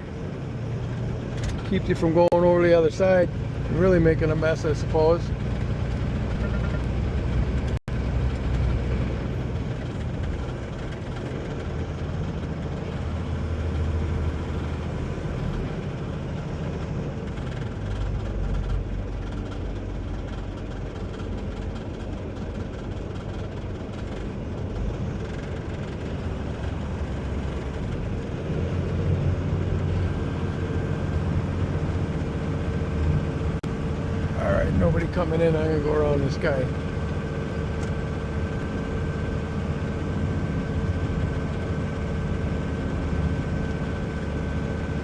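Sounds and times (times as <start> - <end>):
diesel engine rumble: 0.0 - 45.0
tyre and road noise: 0.0 - 45.0.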